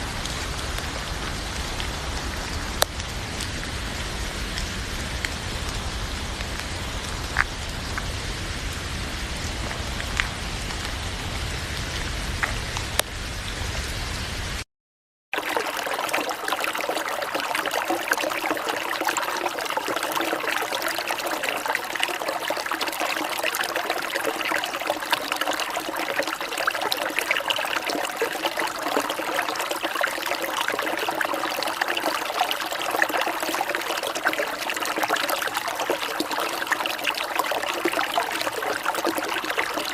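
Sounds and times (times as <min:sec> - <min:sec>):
steady rain falling: 0:00.0 - 0:14.6, 0:15.4 - 0:39.9
water trickling and running: 0:15.4 - 0:39.9.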